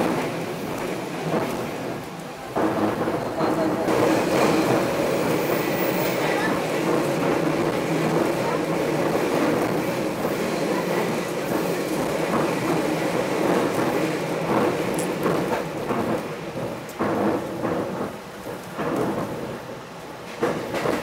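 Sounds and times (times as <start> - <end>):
train rumbling from inside carriage: 0.0 - 21.0
clacks and knocks: 11.9 - 19.6, 20.3 - 21.0.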